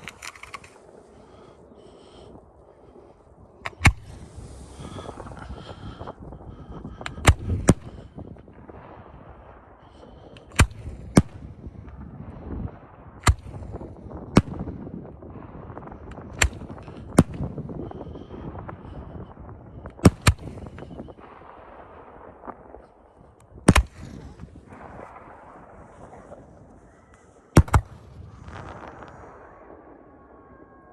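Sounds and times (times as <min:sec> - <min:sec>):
fireworks crackling: 0:03.7 - 0:06.2, 0:13.5 - 0:29.9
fireworks bangs: 0:06.8 - 0:30.2.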